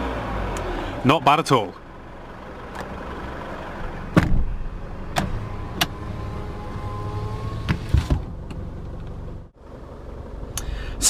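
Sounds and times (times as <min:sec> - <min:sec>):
diesel engine idling: 0:00.0 - 0:06.4, 0:08.6 - 0:11.0.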